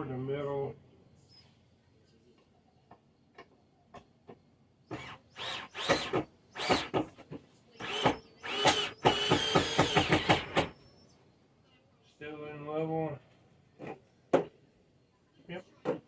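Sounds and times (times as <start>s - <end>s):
power drill driving screws: 4.9s - 7.1s, 7.8s - 10.8s.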